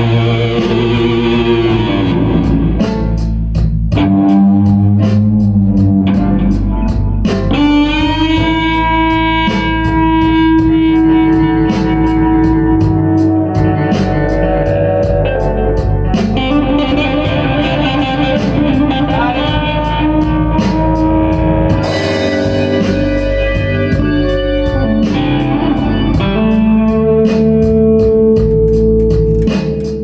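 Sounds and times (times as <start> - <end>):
blues-rock band playing: 0.0 - 30.0
electric guitar bending notes: 0.0 - 30.0.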